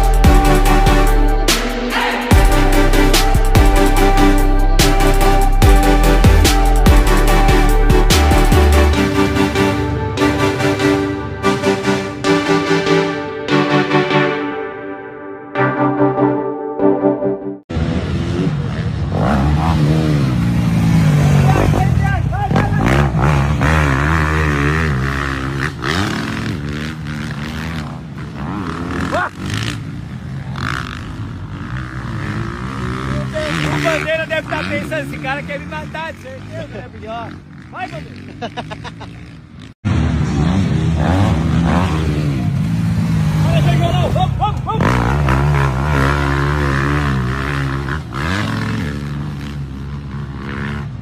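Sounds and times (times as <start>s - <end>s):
motocross bike engines revving: 17.7s - 51.0s.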